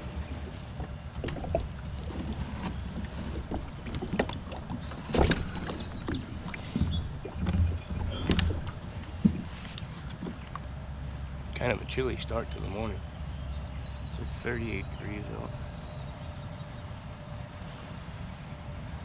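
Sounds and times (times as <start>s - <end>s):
small boat knocking: 0.0s - 10.8s
wind rumbling on microphone: 0.0s - 19.0s.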